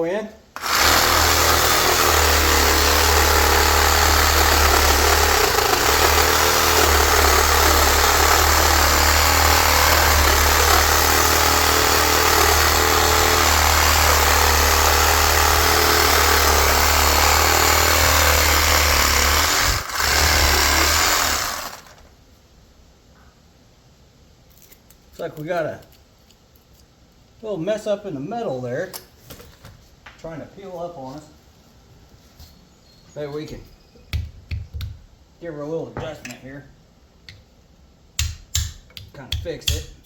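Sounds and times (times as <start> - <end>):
power tool cutting metal: 0.6 - 22.0.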